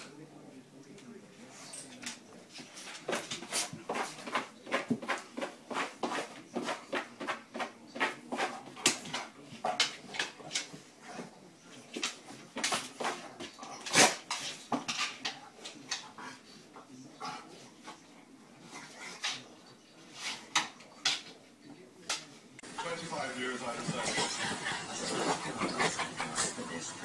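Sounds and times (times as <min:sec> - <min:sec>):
dog scratching cardboard pad: 0:03.4 - 0:09.3.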